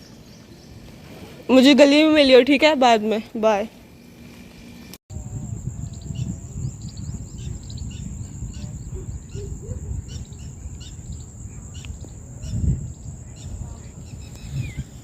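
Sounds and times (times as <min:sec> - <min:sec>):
small birds chirping: 0:02.9 - 0:15.0
high insect drone: 0:03.5 - 0:15.0
low rumble: 0:05.1 - 0:15.0.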